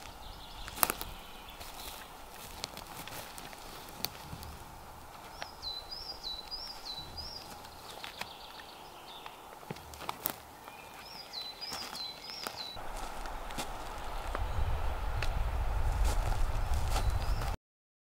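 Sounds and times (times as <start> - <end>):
songbird singing: 0.0 - 17.6
steady outdoor hiss: 0.0 - 17.6
soft thuds on forest floor: 11.7 - 14.6, 15.2 - 17.5.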